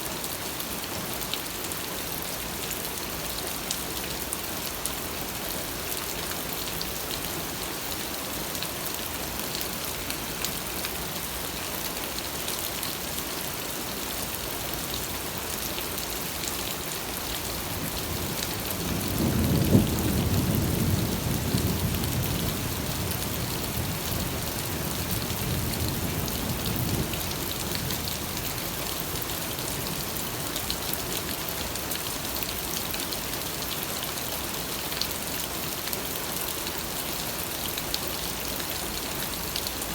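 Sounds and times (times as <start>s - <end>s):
rain patter: 0.0s - 39.9s
thunder rumbling: 18.8s - 23.1s.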